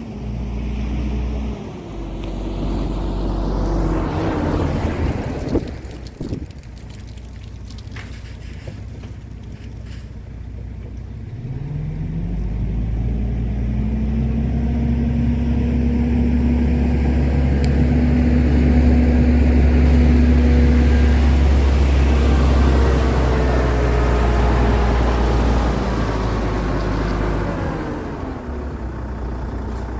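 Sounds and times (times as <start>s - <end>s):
truck diesel engine running: 13.8s - 29.9s.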